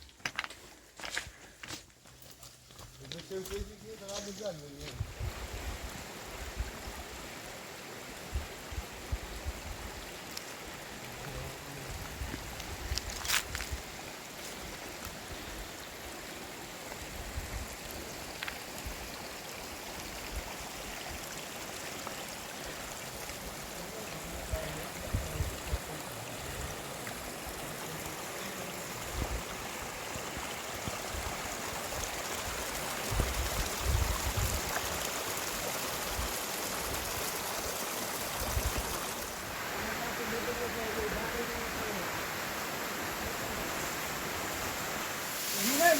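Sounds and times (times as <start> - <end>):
river rushing: 17.8 - 45.9.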